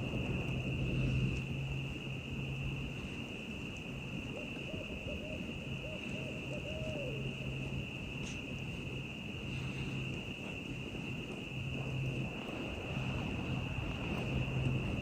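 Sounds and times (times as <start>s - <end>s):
high insect trill: 0.0s - 15.0s
owl hooting: 4.3s - 8.4s.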